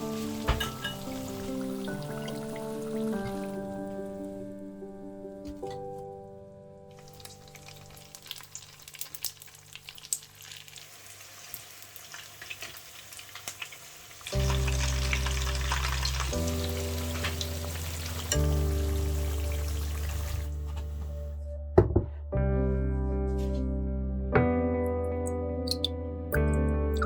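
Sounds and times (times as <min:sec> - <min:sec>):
food frying in hot oil: 0:07.0 - 0:20.5
background music with deep bass: 0:14.4 - 0:27.0.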